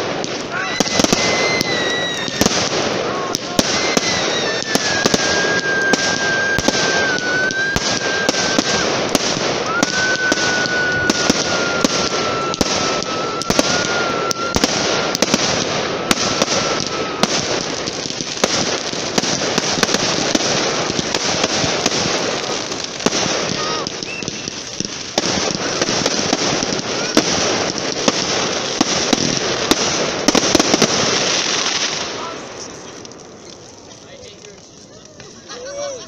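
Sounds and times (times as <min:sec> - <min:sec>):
fireworks crackling pops: 0:00.0 - 0:36.0
firework whistle dropping in pitch: 0:00.5 - 0:02.5, 0:03.6 - 0:09.0, 0:09.6 - 0:17.8, 0:23.4 - 0:24.7.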